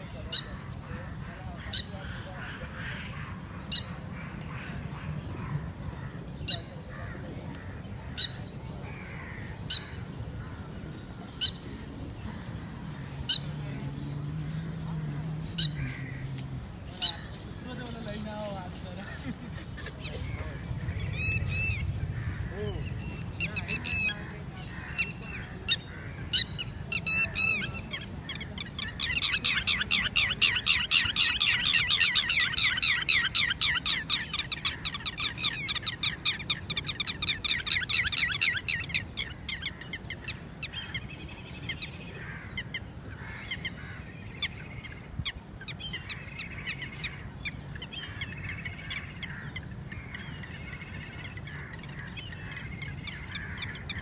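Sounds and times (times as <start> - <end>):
lapwing calling: 13.2 - 17.7, 19.1 - 54.0.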